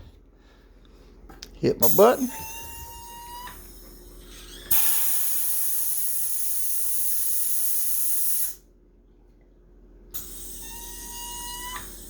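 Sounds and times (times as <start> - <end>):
compressed gas hissing: 4.7 - 8.6.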